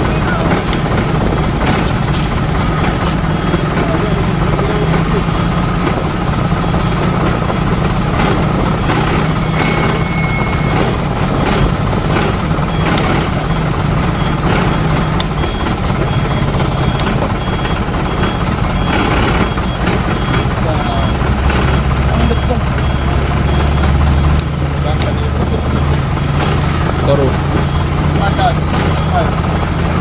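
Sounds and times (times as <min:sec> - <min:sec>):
truck diesel engine idling: 0:00.0 - 0:30.0
faint high beep: 0:09.2 - 0:11.7.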